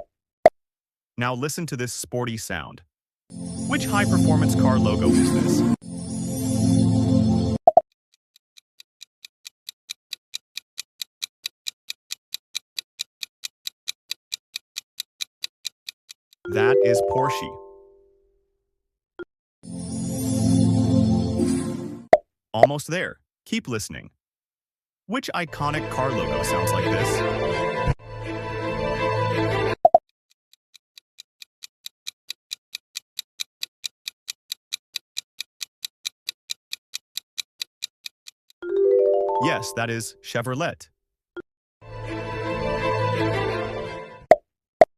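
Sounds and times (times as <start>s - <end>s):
clock ticking: 7.7s - 17.4s, 29.9s - 38.6s.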